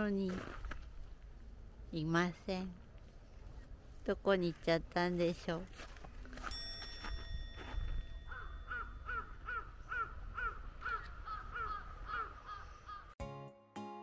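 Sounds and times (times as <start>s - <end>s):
bird calling: 8.3s - 13.2s.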